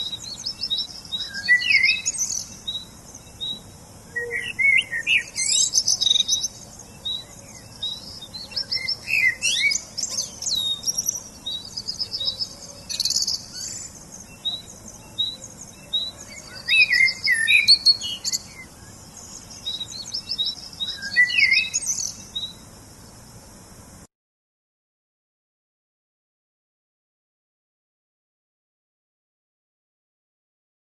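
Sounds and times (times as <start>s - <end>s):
songbirds chirping and trilling: 0.0s - 24.1s.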